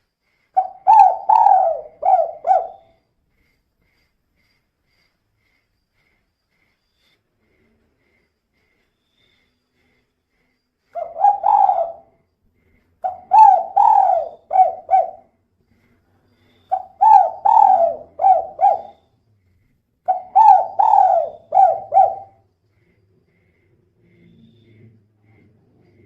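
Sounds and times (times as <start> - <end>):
dove cooing: 0.6 - 3.0, 11.0 - 12.1, 13.0 - 15.3, 16.7 - 19.0, 20.1 - 22.4.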